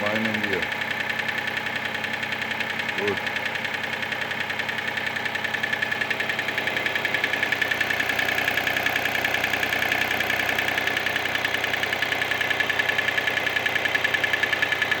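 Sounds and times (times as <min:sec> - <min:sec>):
car engine idling with rattle: 0:00.0 - 0:15.0.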